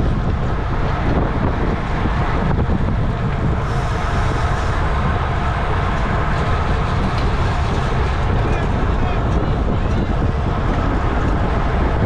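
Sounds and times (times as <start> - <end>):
wind rush on microphone: 0.0 - 12.0.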